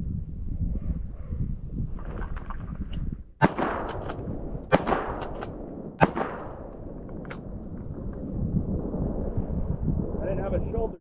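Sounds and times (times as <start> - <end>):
wind rumbling on microphone: 0.0 - 11.0
shotgun shots: 3.4 - 7.5.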